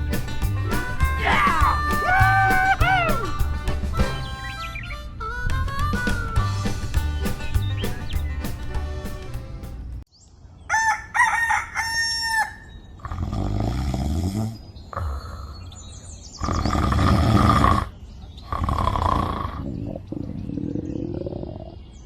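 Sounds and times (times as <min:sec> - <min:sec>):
rooster crowing: 0:10.7 - 0:12.8.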